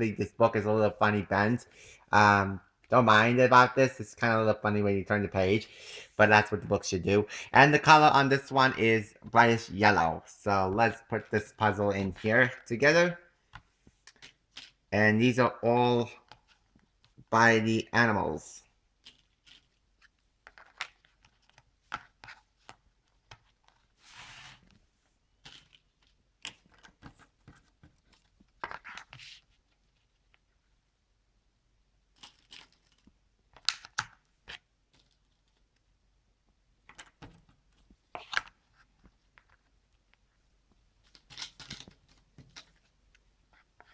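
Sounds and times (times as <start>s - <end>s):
cardboard scraping rustles: 24.0s - 24.7s.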